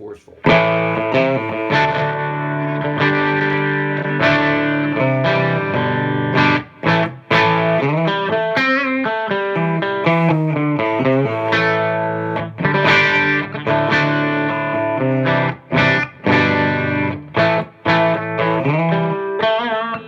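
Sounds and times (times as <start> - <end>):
distorted electric guitar: 0.4 - 20.0.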